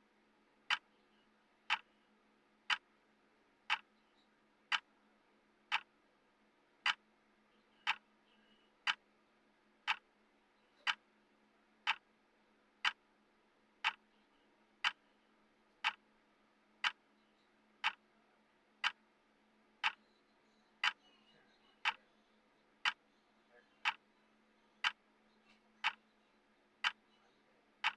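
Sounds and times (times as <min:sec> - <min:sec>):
faint low hum: 0:00.0 - 0:27.9
timer ticking: 0:01.7 - 0:01.9, 0:02.7 - 0:02.9, 0:03.7 - 0:03.9, 0:05.7 - 0:05.9, 0:07.8 - 0:08.0, 0:09.8 - 0:10.1, 0:11.8 - 0:12.0, 0:12.8 - 0:13.0, 0:13.8 - 0:14.0, 0:15.8 - 0:16.0, 0:17.8 - 0:18.0, 0:23.8 - 0:24.0.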